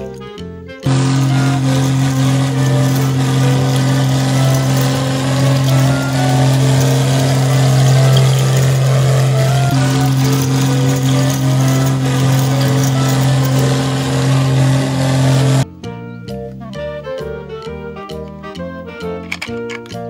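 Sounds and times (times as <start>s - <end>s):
tractor engine running: 0.8s - 15.7s.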